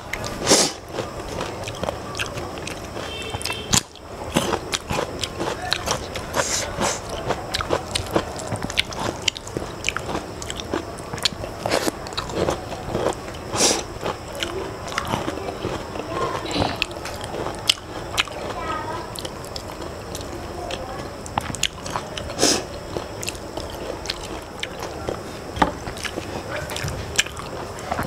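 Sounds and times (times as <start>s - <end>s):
wet chewing and mouth smacks: 0.0s - 18.4s, 19.2s - 28.0s.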